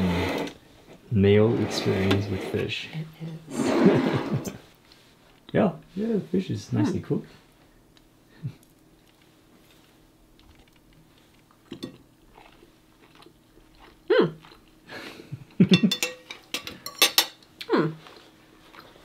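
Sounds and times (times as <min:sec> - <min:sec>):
light chewing clicks: 0:08.0 - 0:11.6.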